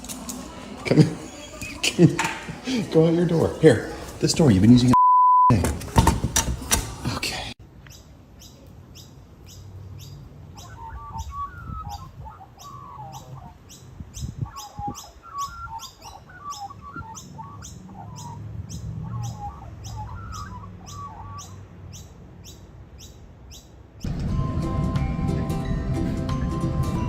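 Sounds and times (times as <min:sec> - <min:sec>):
small bird chirping: 0:07.8 - 0:23.8.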